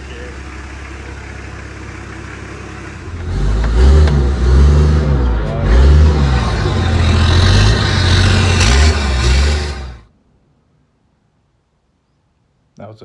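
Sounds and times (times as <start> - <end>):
diesel engine revving: 0.0 - 10.1.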